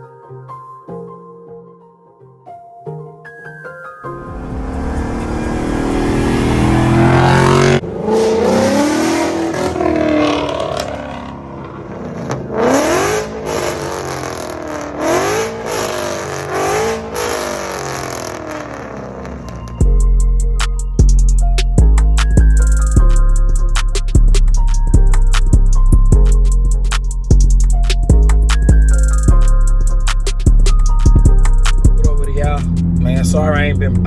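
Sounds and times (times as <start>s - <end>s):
car engine revving hard: 4.2s - 19.6s, 32.0s - 34.0s.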